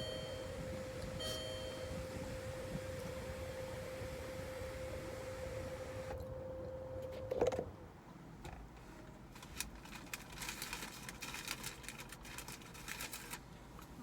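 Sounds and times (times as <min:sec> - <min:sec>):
steady whine: 0:00.0 - 0:07.3
faint clicks and rustles: 0:08.4 - 0:14.0.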